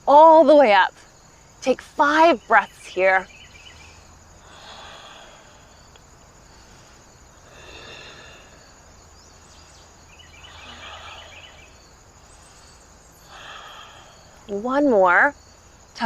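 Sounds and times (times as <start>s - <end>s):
crickets chirping: 0.0s - 16.0s
person breathing deeply: 3.7s - 14.5s.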